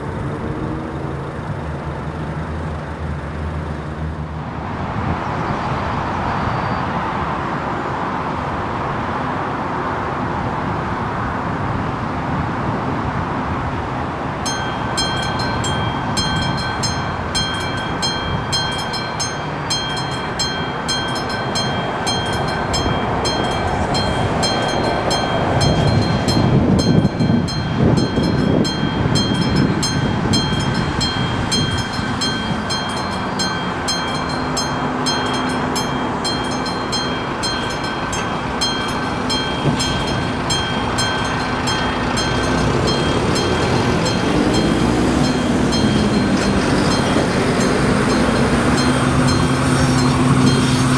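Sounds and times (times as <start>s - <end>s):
train rumble: 0.0s - 50.9s
level crossing bell ringing: 14.4s - 50.9s.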